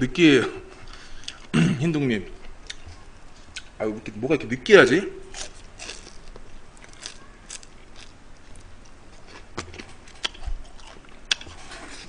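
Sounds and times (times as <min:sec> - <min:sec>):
person chewing crunchy food: 0:05.3 - 0:12.0.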